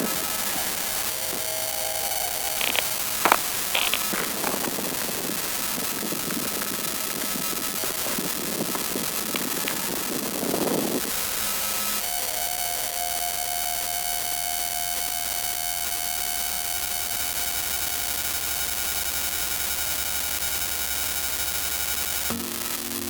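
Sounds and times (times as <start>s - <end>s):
helicopter cabin noise: 0.0s - 12.0s
electronic whine: 0.0s - 23.0s.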